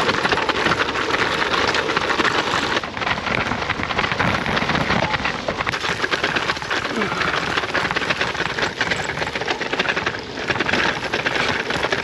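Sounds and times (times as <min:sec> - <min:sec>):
wind buffeting microphone: 0:00.0 - 0:08.2
bike rattling over bumpy ground: 0:00.0 - 0:12.0.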